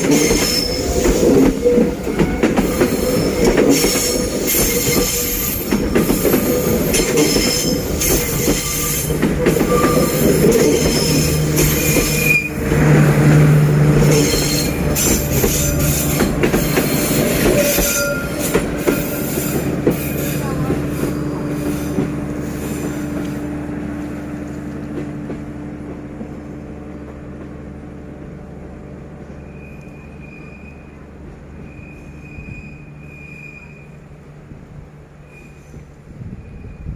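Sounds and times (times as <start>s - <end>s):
train wheels clicking and squealing: 0.0s - 12.6s, 13.9s - 23.4s, 29.3s - 34.2s, 35.2s - 36.9s
low locomotive engine hum: 0.0s - 36.9s.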